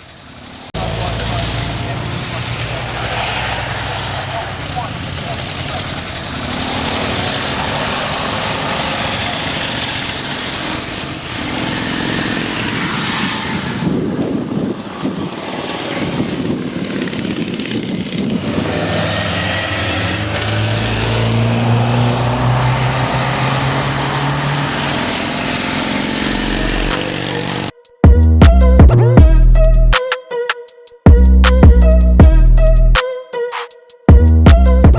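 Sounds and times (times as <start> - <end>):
car engines revving: 0.0 - 27.8
low engine drone: 0.8 - 11.5, 19.3 - 27.7.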